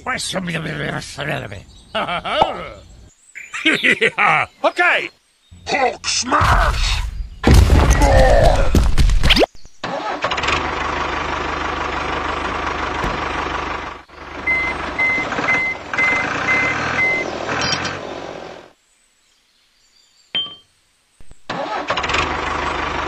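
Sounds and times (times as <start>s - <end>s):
tractor engine running: 9.8s - 18.7s, 21.4s - 23.0s
reversing beeps: 14.5s - 17.2s.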